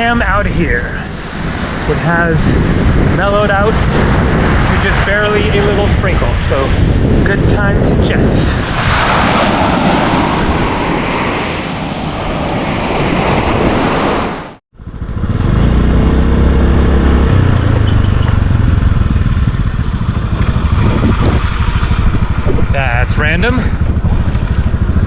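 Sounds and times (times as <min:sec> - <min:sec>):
wind rushing over microphone: 0:00.0 - 0:25.0
motorbike engine running loudly: 0:00.6 - 0:08.2, 0:14.7 - 0:25.0.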